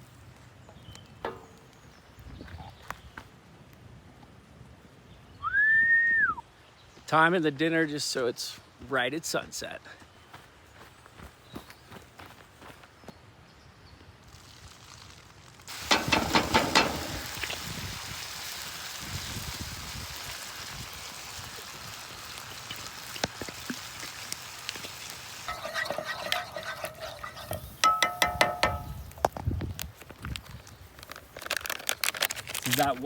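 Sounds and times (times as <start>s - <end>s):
metal clanking against pan: 15.7s - 17.6s, 25.5s - 29.1s
food sizzling in a pan: 15.7s - 29.2s.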